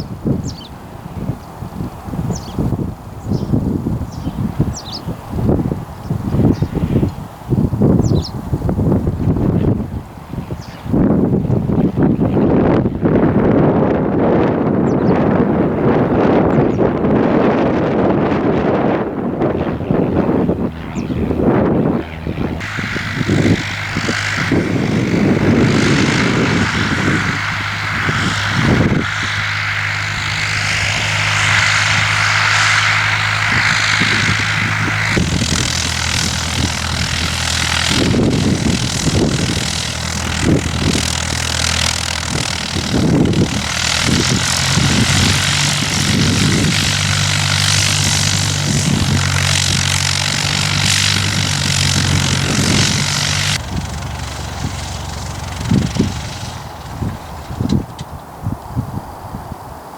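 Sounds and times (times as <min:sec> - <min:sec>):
aircraft piston engine and propeller: 0:00.0 - 0:59.9
wind buffeting microphone: 0:00.0 - 0:59.9.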